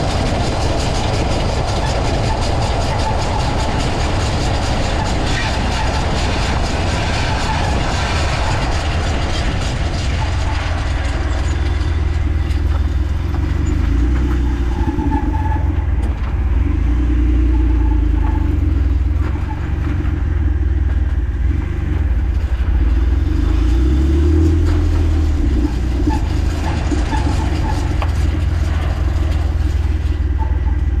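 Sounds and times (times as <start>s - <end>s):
engine low rumble: 0.0s - 31.0s.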